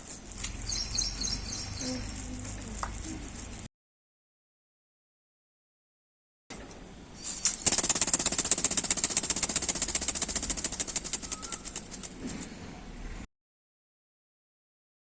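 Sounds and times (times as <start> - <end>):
ornithopter wings clattering: 6.5 - 12.5.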